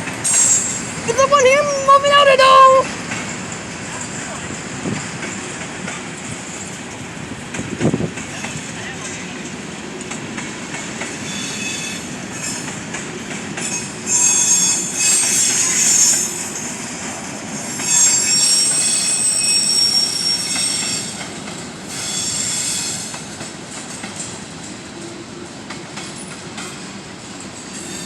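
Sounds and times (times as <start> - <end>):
rumble of train cars: 0.0 - 28.0
train wheels squealing: 0.2 - 1.1, 11.1 - 12.8, 13.6 - 16.9, 17.6 - 23.4, 27.5 - 28.0.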